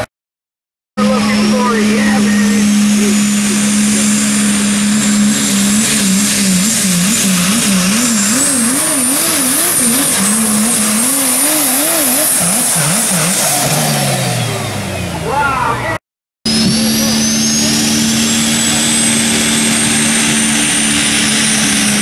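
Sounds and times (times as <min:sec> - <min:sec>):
diesel truck engine at full throttle: 0:01.0 - 0:22.0
turbo whistle: 0:16.5 - 0:20.4.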